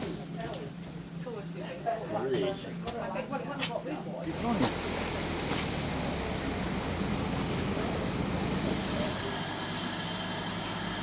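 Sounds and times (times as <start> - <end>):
train rumbling: 4.3 - 11.0.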